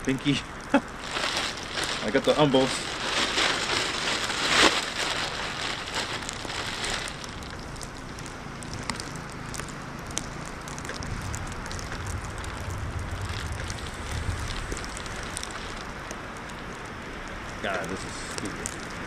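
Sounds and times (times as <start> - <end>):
wind rumbling on microphone: 0.0 - 19.0
plastic bag rustling: 0.7 - 8.2, 11.0 - 16.2.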